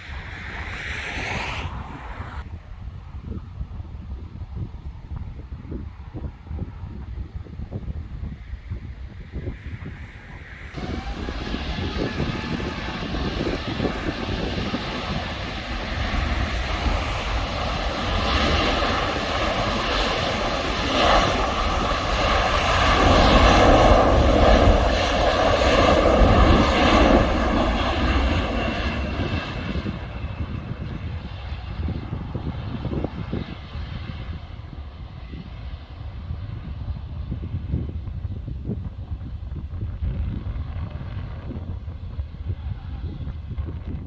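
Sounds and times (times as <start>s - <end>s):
jet engine noise: 0.0s - 44.0s
fan whine: 9.4s - 32.2s.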